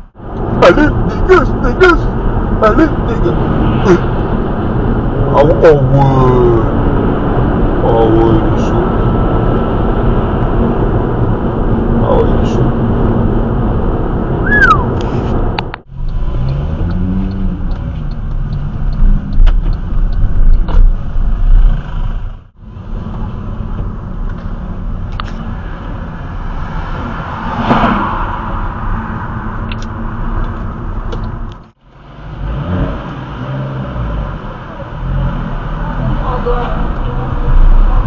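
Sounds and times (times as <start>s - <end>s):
sports car engines revving: 0.0s - 38.0s.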